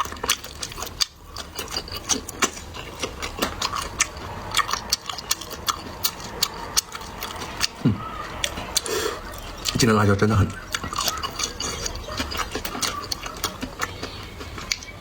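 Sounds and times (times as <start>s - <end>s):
wet mouth clicks: 0.0s - 9.9s
close chewing: 0.0s - 15.0s.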